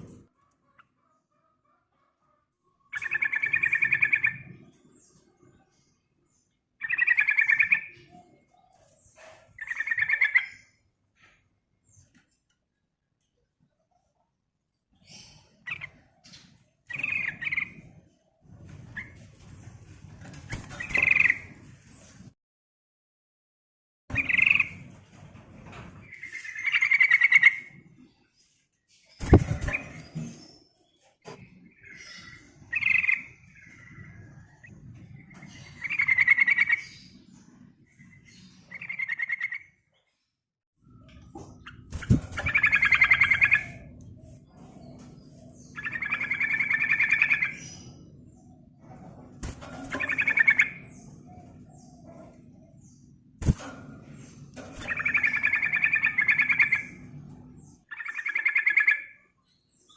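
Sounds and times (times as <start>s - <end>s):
bulbul singing: 41.6s - 44.0s, 54.8s - 57.0s, 57.9s - 59.9s.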